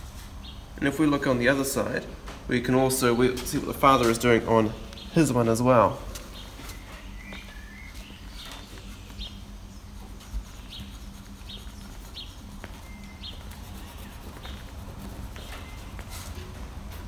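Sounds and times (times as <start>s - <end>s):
steady low hum: 0.0s - 17.0s
small bird chirping: 6.3s - 16.0s.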